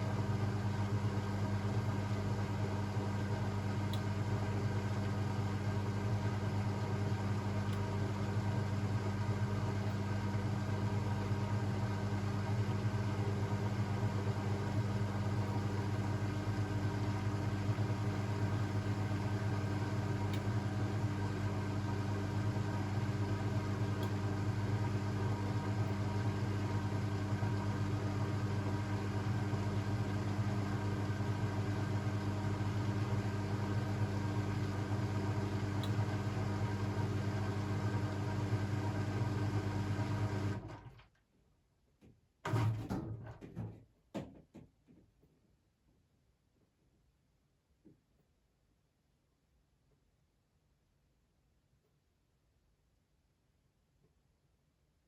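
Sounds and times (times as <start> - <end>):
washing machine humming: 0.0 - 41.0.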